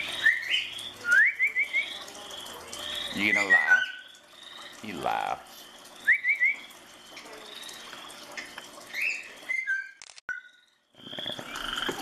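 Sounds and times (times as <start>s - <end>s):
parrot chirping: 0.0s - 4.8s.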